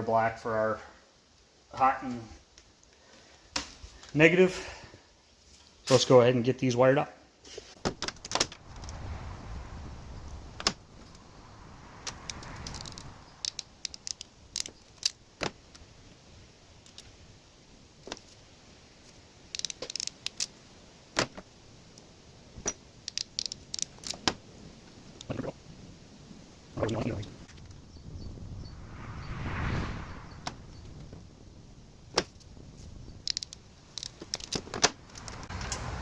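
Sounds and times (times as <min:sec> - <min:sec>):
small metallic clicks and clatters: 0:19.5 - 0:20.6, 0:22.6 - 0:24.3, 0:33.2 - 0:35.9.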